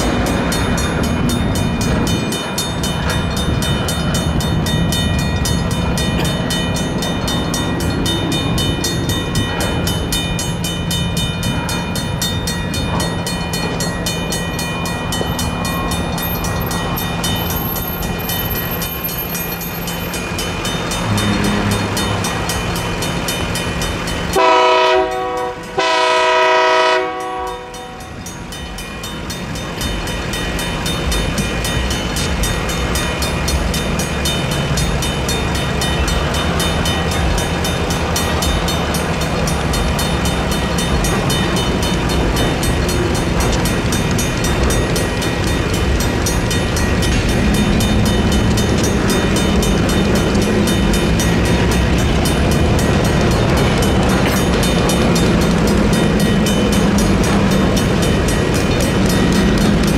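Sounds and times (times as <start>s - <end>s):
crossing bells ringing: 0.0s - 59.9s
train rumble: 0.0s - 59.9s
locomotive horn blasts: 21.0s - 22.2s, 24.4s - 28.1s.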